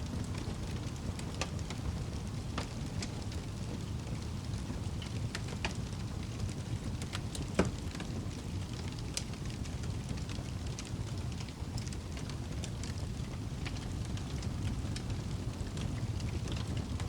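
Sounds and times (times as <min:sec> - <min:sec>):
low rumble of flames: 0:00.0 - 0:17.0
wood fire crackling: 0:00.0 - 0:17.0.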